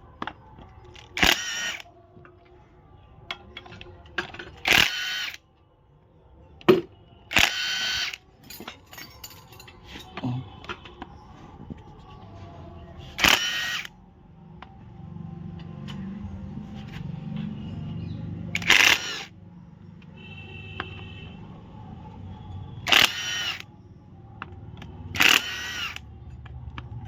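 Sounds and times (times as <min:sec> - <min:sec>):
clicks of tools and metal parts: 0:00.2 - 0:02.5, 0:03.2 - 0:05.4, 0:06.6 - 0:11.1, 0:15.5 - 0:16.2, 0:18.5 - 0:19.3
power wrench whirring: 0:01.0 - 0:01.9, 0:04.6 - 0:05.4, 0:07.3 - 0:08.2, 0:13.2 - 0:13.9, 0:18.5 - 0:19.3, 0:22.8 - 0:23.6, 0:25.1 - 0:26.0.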